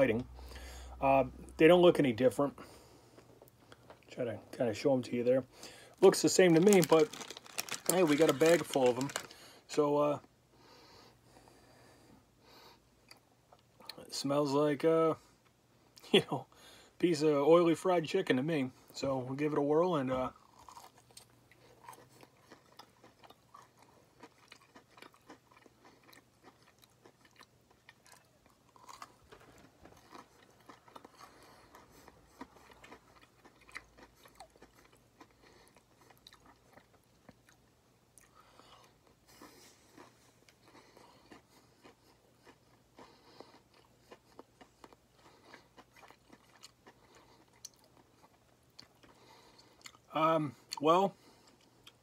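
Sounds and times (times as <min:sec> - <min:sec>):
person chewing crunchy food: 0:06.0 - 0:09.5, 0:20.3 - 0:52.0.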